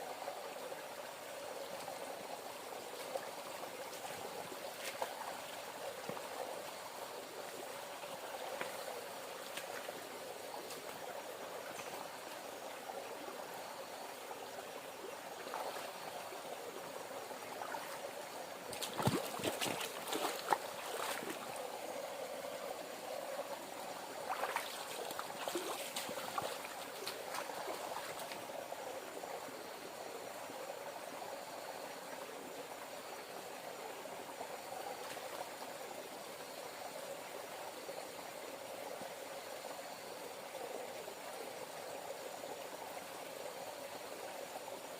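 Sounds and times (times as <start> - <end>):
river water flowing: 0.0 - 44.9.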